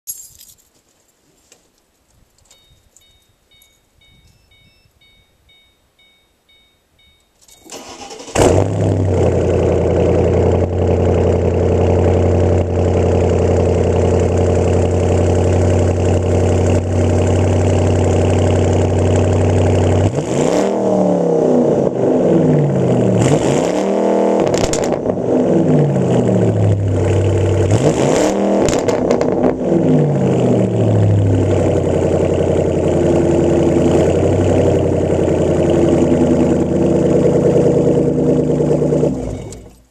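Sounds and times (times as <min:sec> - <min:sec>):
faint chime: 0:02.5 - 0:07.8
car engine idling and revving: 0:07.8 - 0:39.8.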